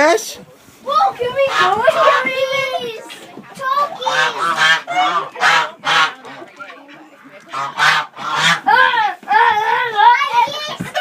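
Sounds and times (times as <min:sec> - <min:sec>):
geese honking: 0:01.4 - 0:02.3, 0:03.9 - 0:08.9.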